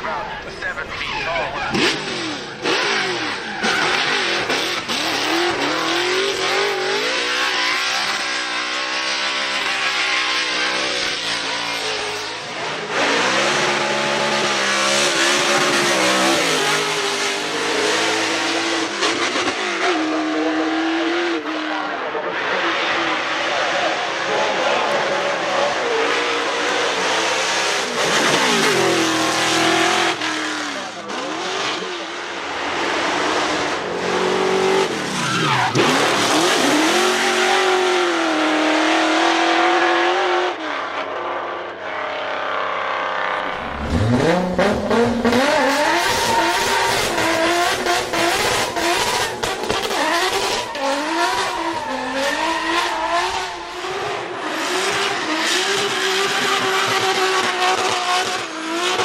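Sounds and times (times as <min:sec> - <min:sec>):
car engine revving hard: 0:01.6 - 0:41.1, 0:42.0 - 0:59.0
tyres squealing: 0:43.6 - 0:54.3.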